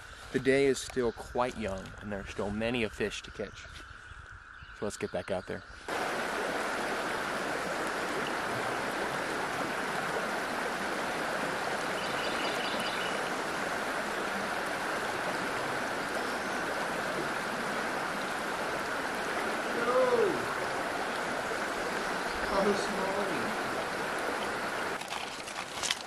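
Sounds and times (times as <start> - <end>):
river water rushing: 5.9 - 26.0.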